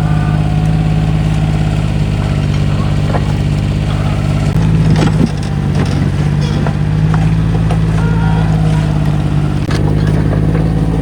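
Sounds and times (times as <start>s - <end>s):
excavator engine running: 0.0s - 11.0s
knocks and clanks: 0.0s - 11.0s.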